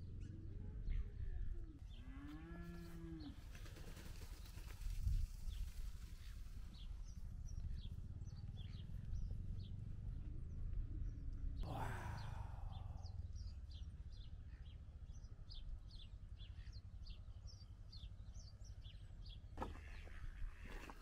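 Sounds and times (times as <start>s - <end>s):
small birds chirping: 0.0s - 21.0s
low steady rumble: 5.5s - 19.6s.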